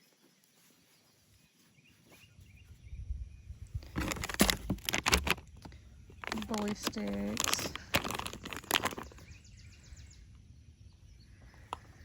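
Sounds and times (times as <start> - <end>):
packaging rustling: 3.8 - 9.3
sharp crackles of packaging: 3.8 - 9.3.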